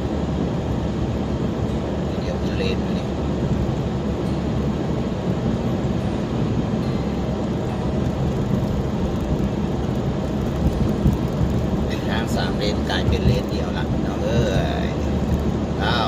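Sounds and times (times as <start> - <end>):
car cabin road and engine noise: 0.0 - 16.0.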